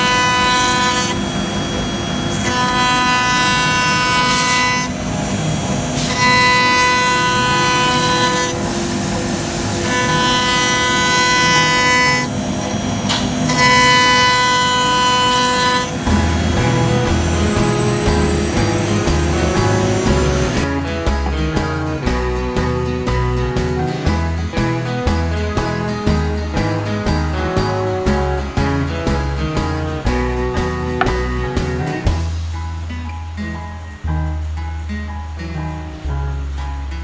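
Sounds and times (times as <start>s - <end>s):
router motor whine: 0.0s - 20.7s
steady machine hum: 0.0s - 32.3s.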